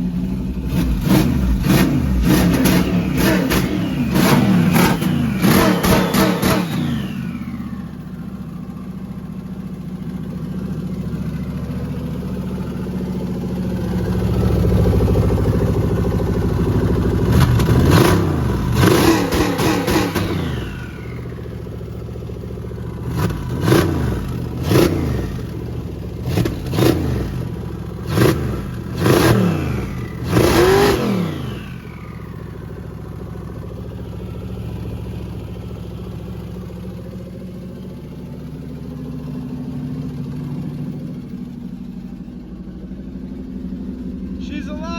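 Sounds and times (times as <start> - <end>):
car engine revving: 0.0 - 7.8, 17.1 - 21.3, 23.0 - 25.6, 26.2 - 32.4.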